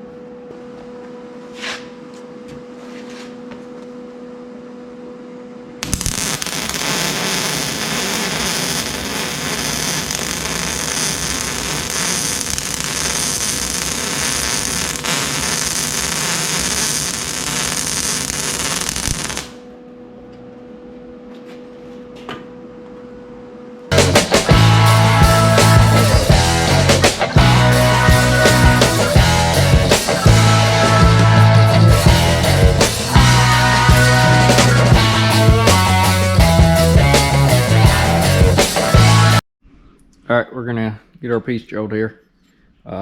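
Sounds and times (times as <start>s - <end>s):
electrical hum: 0.0s - 35.7s
arc welding crackling hiss: 5.8s - 19.6s
music: 23.9s - 39.4s.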